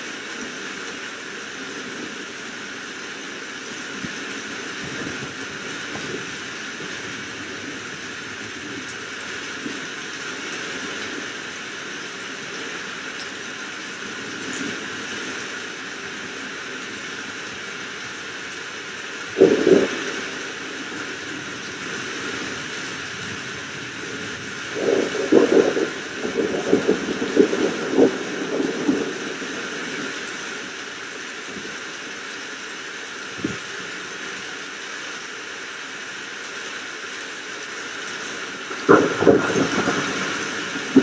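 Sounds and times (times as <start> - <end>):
steady rain hiss: 0.0 - 41.0
crackling thunder: 0.5 - 32.0, 38.2 - 41.0
sharp thunder crack: 19.4 - 20.6, 24.7 - 29.5, 38.7 - 41.0.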